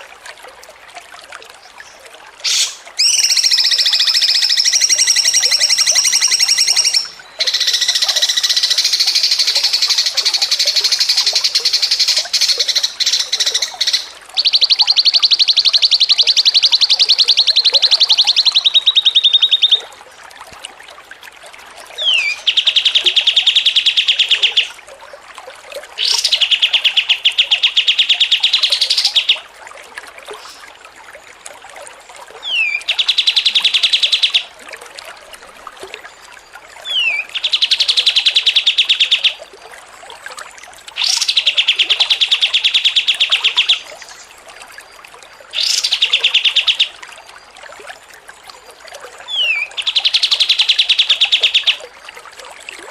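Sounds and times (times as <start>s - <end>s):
songbird singing buzzy trills: 2.5s - 19.9s, 22.0s - 24.8s, 26.0s - 29.4s, 32.4s - 34.5s, 36.1s - 39.4s, 41.0s - 47.6s, 49.3s - 51.9s.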